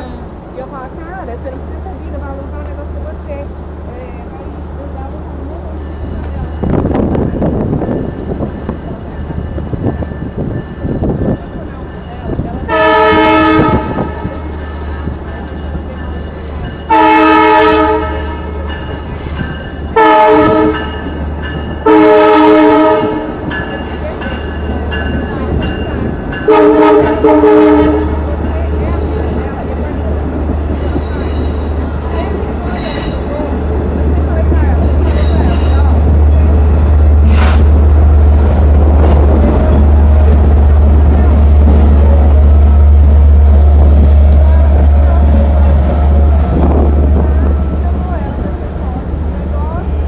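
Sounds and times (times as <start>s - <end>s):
diesel train engine rumbling: 0.0s - 50.0s
train horn blasts: 12.7s - 14.7s, 16.9s - 18.6s, 19.9s - 21.0s, 21.8s - 23.5s, 26.4s - 28.3s.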